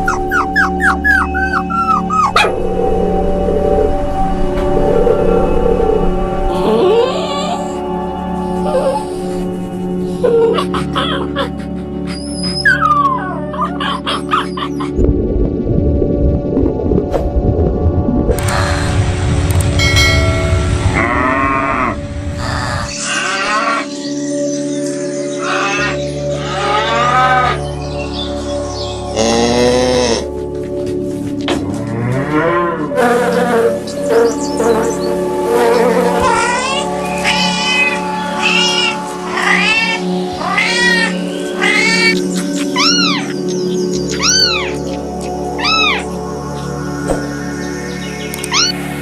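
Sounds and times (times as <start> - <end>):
background music: 0.0 - 49.0
cattle mooing: 31.7 - 34.4
cat meowing: 36.4 - 42.2, 42.8 - 43.3, 45.6 - 46.1.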